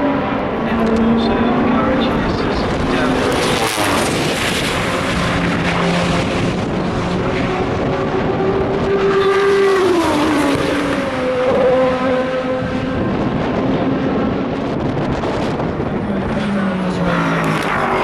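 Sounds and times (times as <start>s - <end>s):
racing car engines: 0.0s - 18.0s.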